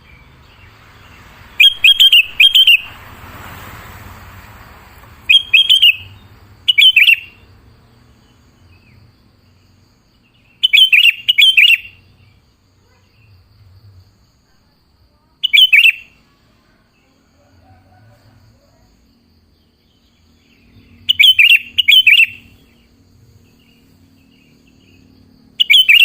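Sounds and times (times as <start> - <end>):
bulbul song: 0.0 - 4.1, 5.1 - 12.5, 15.1 - 17.5, 19.6 - 26.0.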